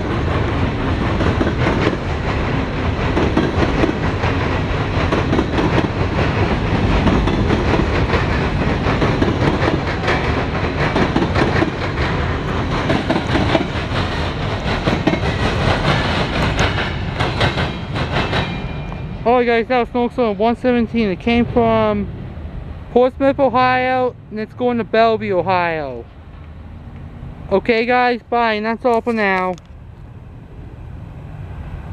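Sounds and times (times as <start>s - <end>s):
wheels clicking over rail joints: 0.0s - 19.1s
steel wheels rumbling on rail: 0.0s - 31.9s.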